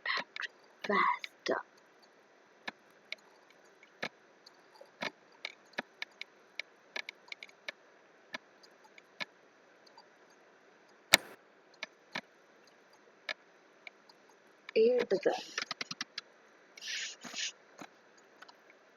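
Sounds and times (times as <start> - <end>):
computer mouse and keyboard clicks: 11.1 - 12.3, 15.4 - 16.2.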